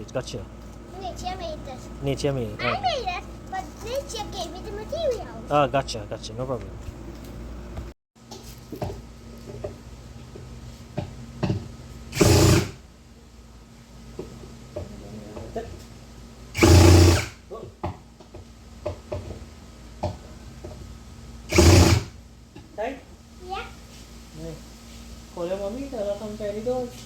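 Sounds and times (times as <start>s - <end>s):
power drill running: 12.1s - 12.8s, 16.6s - 17.4s, 21.5s - 22.2s.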